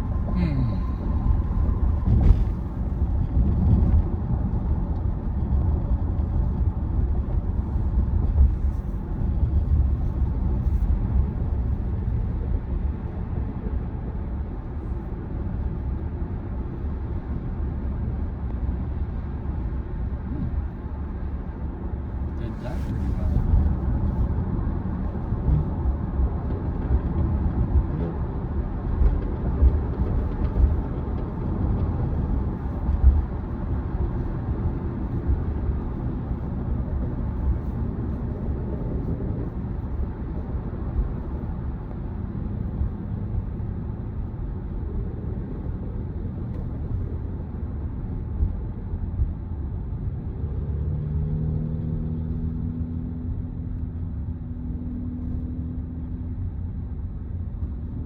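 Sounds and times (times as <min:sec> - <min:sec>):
low hum: 0:00.0 - 0:12.3
road and tyre rumble: 0:00.0 - 0:58.0.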